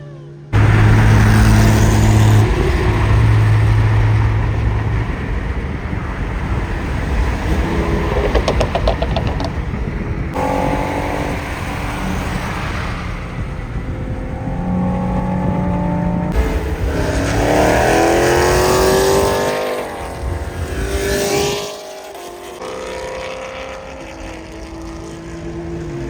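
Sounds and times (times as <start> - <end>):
car engines revving hard: 0.5 - 26.0
engine popping: 0.6 - 12.2.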